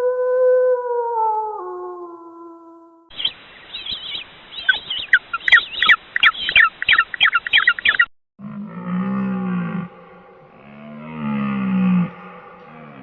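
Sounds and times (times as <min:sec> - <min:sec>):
bird chirping sharply: 0:03.1 - 0:08.1
deep low bird call: 0:03.1 - 0:13.0.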